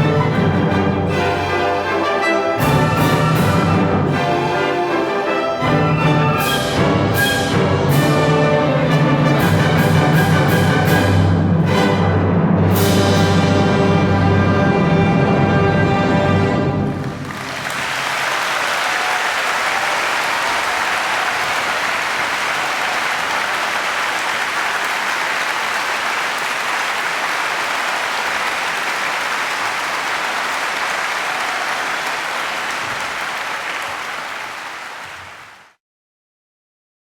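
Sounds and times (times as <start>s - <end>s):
audience applauding: 16.9s - 35.8s.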